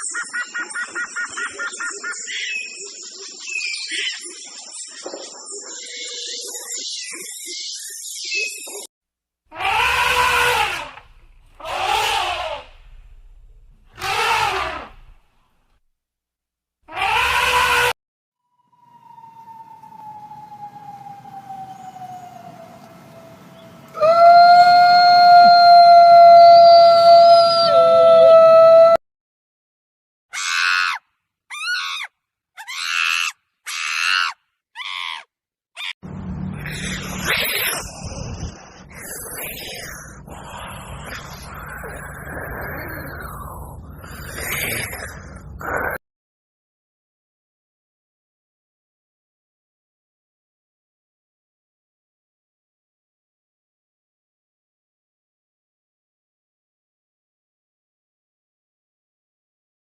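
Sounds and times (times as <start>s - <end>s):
animal high calls: 9.5s - 12.9s, 13.9s - 15.1s, 16.9s - 17.9s, 30.3s - 36.0s
low noisy animal sound: 9.5s - 15.1s, 36.5s - 46.0s.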